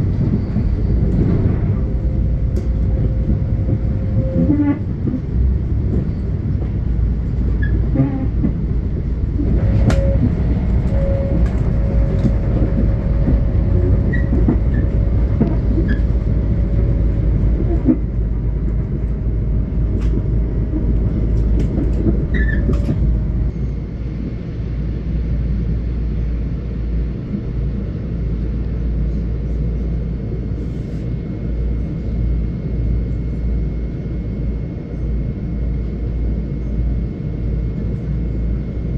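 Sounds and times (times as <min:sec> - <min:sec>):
steady whine: 0:00.0 - 0:07.4, 0:08.8 - 0:25.2
rail clicks: 0:00.0 - 0:23.6
train rumbling past: 0:00.0 - 0:35.0.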